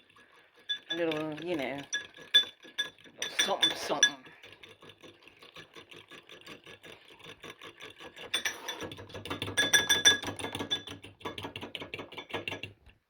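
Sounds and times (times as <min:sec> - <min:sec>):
fork clinking in a bowl: 0:00.6 - 0:04.6, 0:08.2 - 0:12.7.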